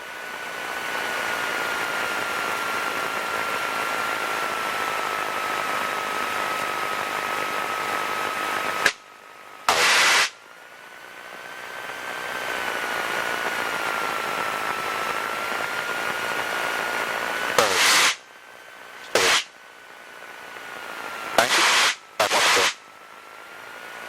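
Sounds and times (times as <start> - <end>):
faint steady whine: 0.0 - 24.0
loud burst of hiss: 9.7 - 10.4, 17.5 - 18.3, 19.0 - 19.6, 21.2 - 22.8.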